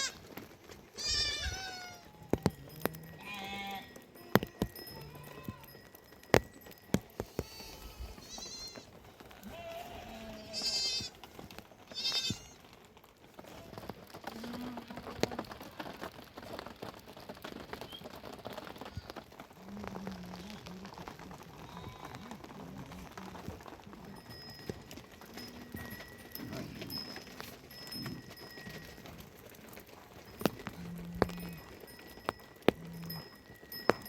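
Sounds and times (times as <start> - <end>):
sheep bleating: 0.0 - 0.2, 1.0 - 5.7, 7.2 - 11.2, 11.9 - 12.6.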